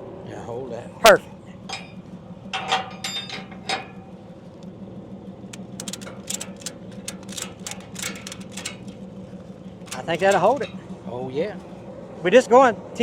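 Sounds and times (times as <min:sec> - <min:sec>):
engine hum: 0:00.0 - 0:13.0
ratchet strap clicking: 0:05.5 - 0:09.0, 0:09.8 - 0:10.7.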